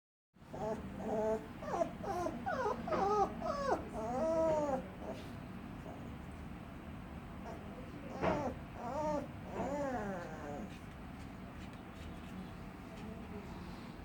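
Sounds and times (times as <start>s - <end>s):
puppy whimpering: 0.5s - 5.2s, 7.4s - 10.8s.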